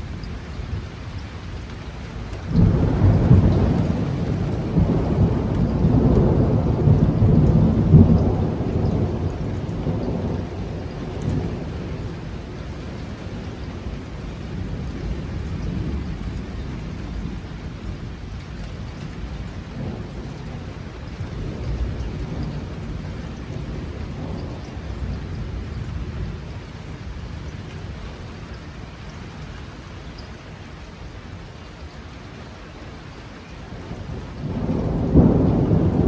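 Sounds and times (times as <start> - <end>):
steady rain: 0.0 - 36.0
thunder rolling: 2.5 - 17.5, 33.8 - 36.0.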